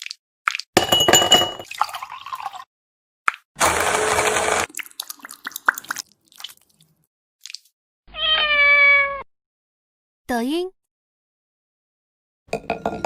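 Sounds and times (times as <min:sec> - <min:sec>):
cat meowing: 0:08.1 - 0:09.3.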